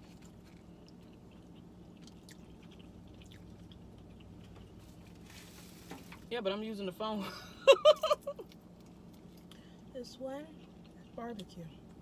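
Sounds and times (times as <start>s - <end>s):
chewing with wet mouth clicks: 0.0s - 4.8s, 8.4s - 9.8s, 10.6s - 12.0s
low steady hum: 0.0s - 12.0s.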